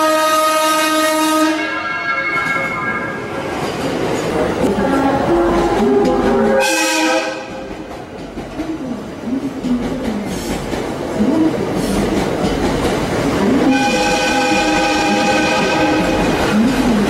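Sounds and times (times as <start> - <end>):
train air horn blast: 0.0 - 2.9, 4.7 - 7.7, 13.6 - 16.4
train wheels clacking over rail joints: 3.5 - 17.0.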